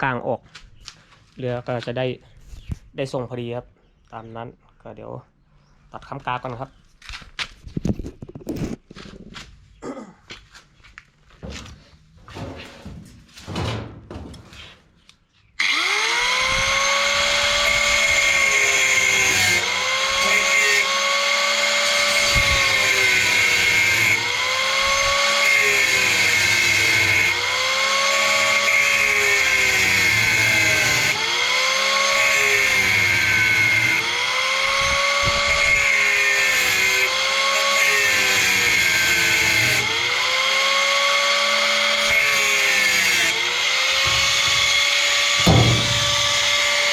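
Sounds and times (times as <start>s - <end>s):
angle grinder cutting steel: 15.6s - 46.9s.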